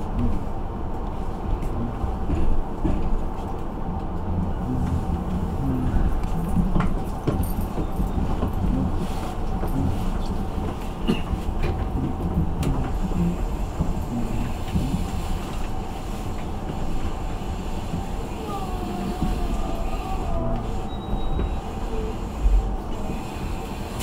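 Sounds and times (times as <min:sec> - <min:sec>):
train rumbling on rails: 0:00.0 - 0:24.0
faint hum: 0:04.3 - 0:06.6.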